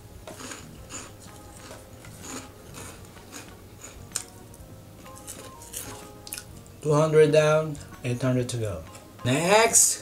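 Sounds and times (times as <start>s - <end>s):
crunchy snacks being chewed: 0.3s - 4.4s, 5.1s - 6.5s.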